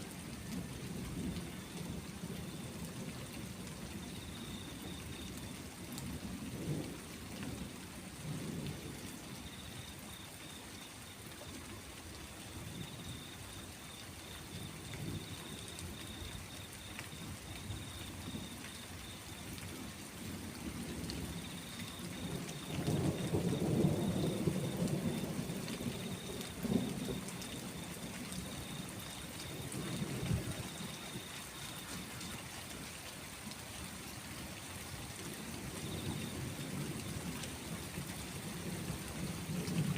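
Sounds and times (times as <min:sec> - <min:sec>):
steady rain falling: 0:00.0 - 0:39.9
rolling thunder: 0:21.0 - 0:27.9.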